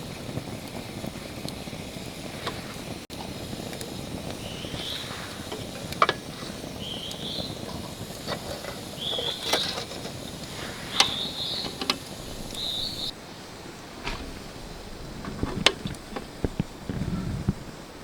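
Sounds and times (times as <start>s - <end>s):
outdoor background noise: 0.0s - 18.0s
songbird warbling: 4.3s - 16.6s.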